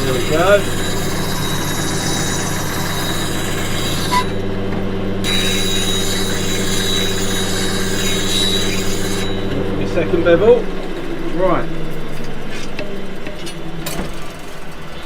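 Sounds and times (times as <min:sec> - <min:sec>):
gouge grinding hiss: 0:00.0 - 0:04.3
grinder motor humming: 0:00.0 - 0:15.0.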